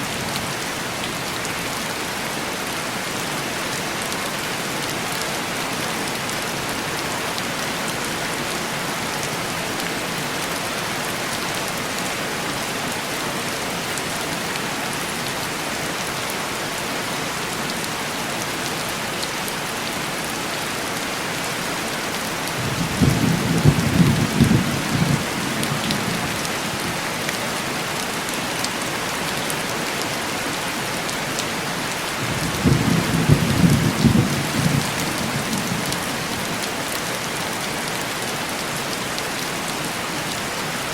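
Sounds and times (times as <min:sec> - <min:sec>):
heavy rain on window glass: 0:22.1 - 0:37.0.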